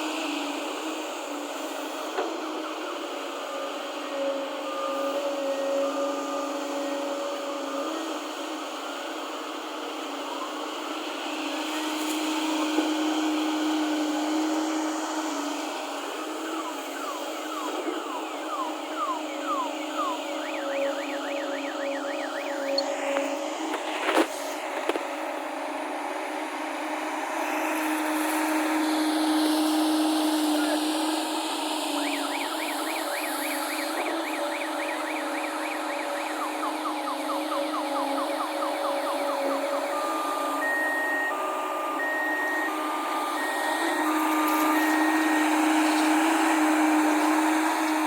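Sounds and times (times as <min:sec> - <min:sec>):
excavator diesel engine droning: 0:00.0 - 0:48.0
two-tone reversing alarm beeps: 0:16.2 - 0:23.0, 0:32.0 - 0:45.5.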